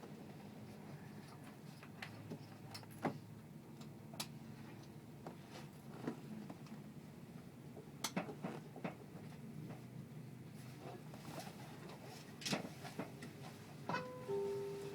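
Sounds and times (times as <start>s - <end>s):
train carriage hum: 4.8s - 14.9s.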